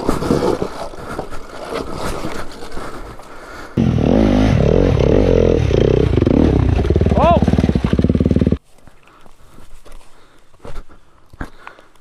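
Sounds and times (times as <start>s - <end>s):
rustling and scraping: 0.0s - 3.4s
dirt bike engine revving: 3.8s - 8.6s.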